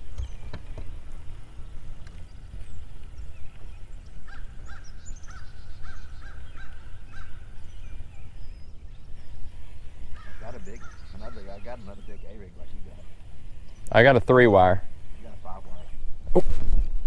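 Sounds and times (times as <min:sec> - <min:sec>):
bird honking calls: 0:03.7 - 0:08.5, 0:09.1 - 0:14.0.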